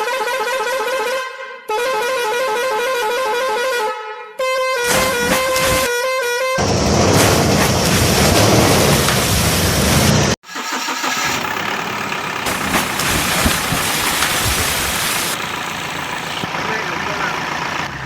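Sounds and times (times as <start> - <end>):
engine running loud and rough: 6.6 - 18.0
quieter engine running steadily: 11.5 - 18.0.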